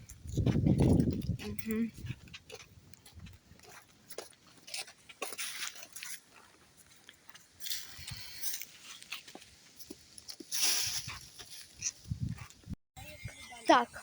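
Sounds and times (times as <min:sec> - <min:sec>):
dry leaves crunching underfoot: 0:04.2 - 0:12.0.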